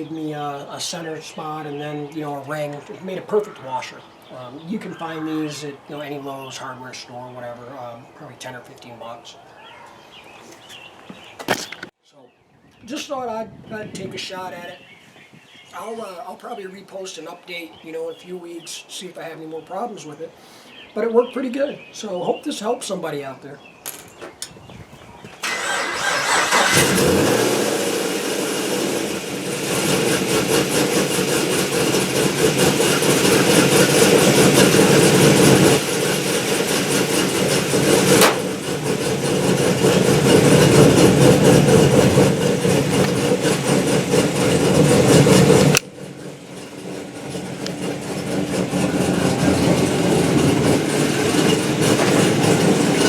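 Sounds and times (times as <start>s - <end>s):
car engine starting and running: 25.4s - 53.0s.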